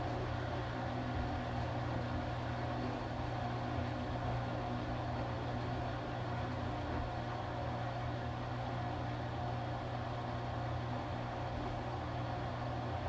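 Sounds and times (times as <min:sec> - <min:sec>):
washing machine running: 0:00.0 - 0:07.6, 0:10.9 - 0:13.0.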